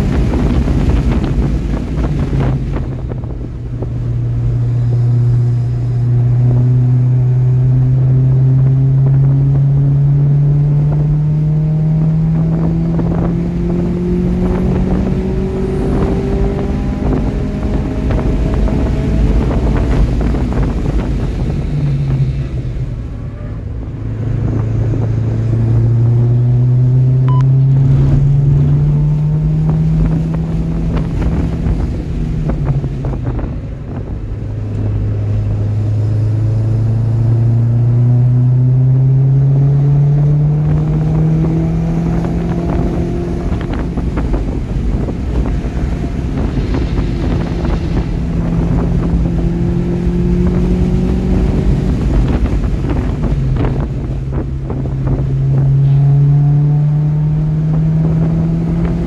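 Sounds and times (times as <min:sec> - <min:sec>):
car engine accelerating hard: 0:00.0 - 0:59.0
wind and road noise: 0:00.0 - 0:59.0.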